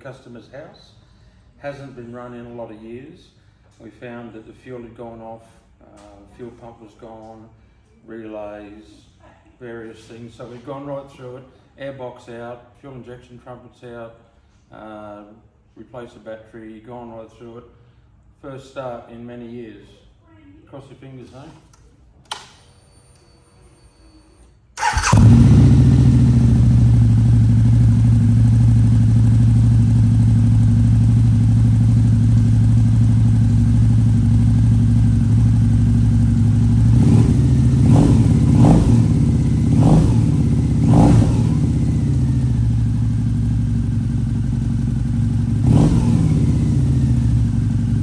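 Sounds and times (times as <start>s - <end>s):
motorcycle engine idling: 24.8s - 48.0s.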